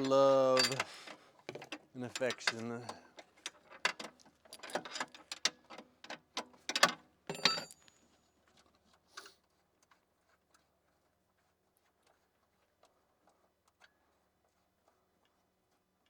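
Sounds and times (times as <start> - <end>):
short metallic ring: 7.3 - 7.9.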